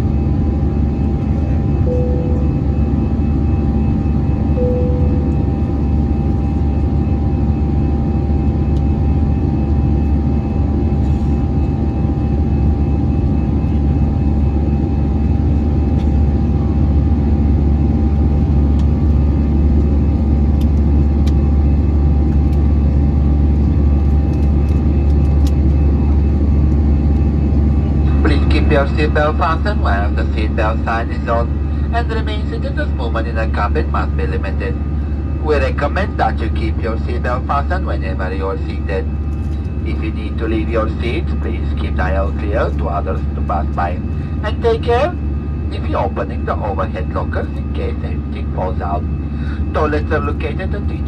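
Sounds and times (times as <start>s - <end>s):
jet engine cabin rumble: 0.0s - 51.0s
short chime tones: 1.9s - 2.8s, 4.6s - 5.6s.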